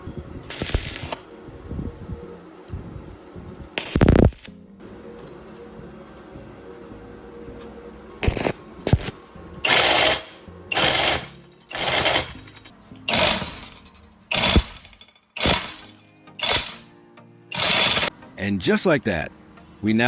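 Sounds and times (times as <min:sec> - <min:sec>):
background music: 0:00.0 - 0:20.0
power tool running in bursts: 0:08.2 - 0:16.9, 0:17.5 - 0:18.1.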